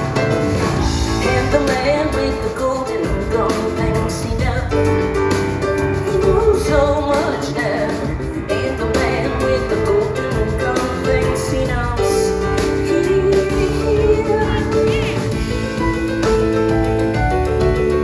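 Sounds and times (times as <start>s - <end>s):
rock band playing: 0.0s - 18.0s
woman singing: 1.1s - 15.5s.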